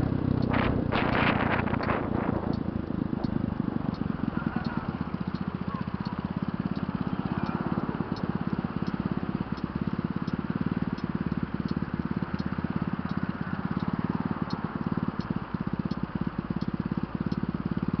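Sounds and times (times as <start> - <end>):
motorbike exhaust at steady speed: 0.0 - 18.0.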